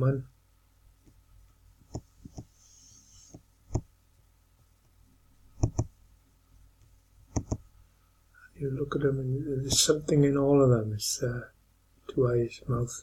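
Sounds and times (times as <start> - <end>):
computer mouse clicking: 1.9 - 2.5, 3.3 - 3.9, 5.6 - 5.9, 7.3 - 7.7.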